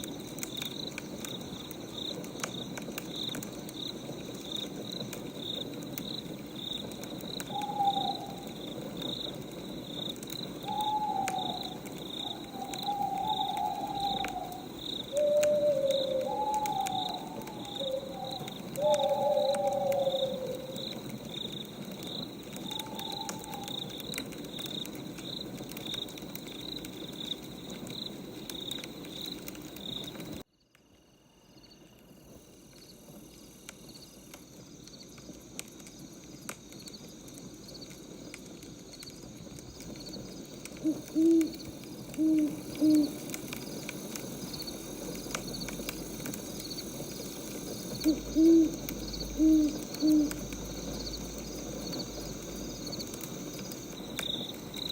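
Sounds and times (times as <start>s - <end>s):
insects chirping: 0.0s - 54.9s
owl hooting: 7.5s - 8.5s, 10.6s - 20.8s, 22.6s - 23.8s, 40.8s - 43.4s, 48.0s - 50.6s.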